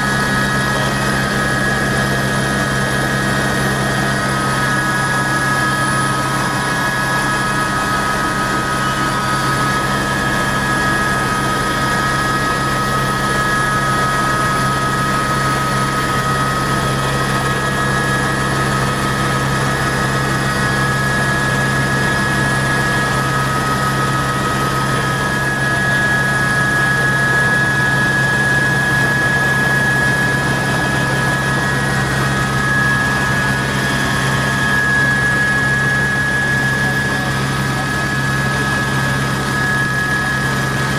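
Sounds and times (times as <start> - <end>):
helicopter rotor drone: 0.0 - 40.9
turbine whine: 0.0 - 40.9.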